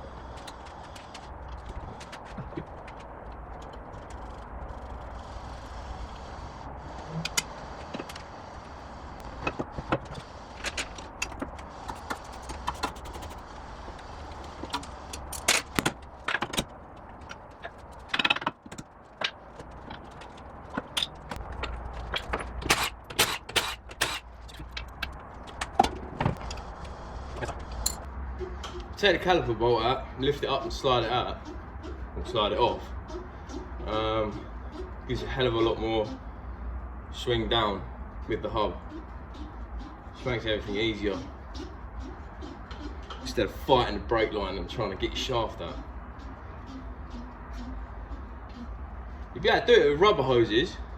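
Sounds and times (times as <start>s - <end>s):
low steady hum: 0.0s - 50.9s
metal hand tools clinking: 27.8s - 28.1s.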